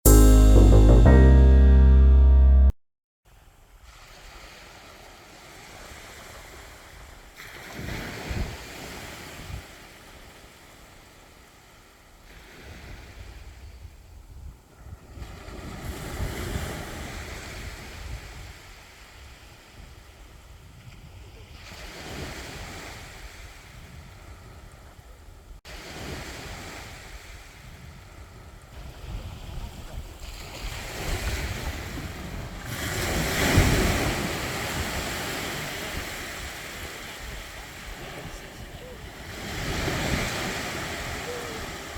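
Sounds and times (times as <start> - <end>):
sea waves breaking on beach: 3.7 - 13.7, 15.0 - 24.8, 25.7 - 41.9
wind rumbling on microphone: 26.8 - 41.9.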